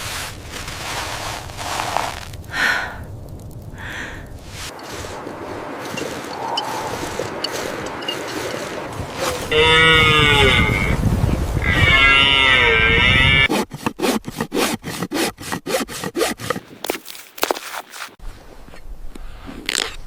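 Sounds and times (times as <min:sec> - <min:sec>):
long animal calls: 0:09.1 - 0:13.5.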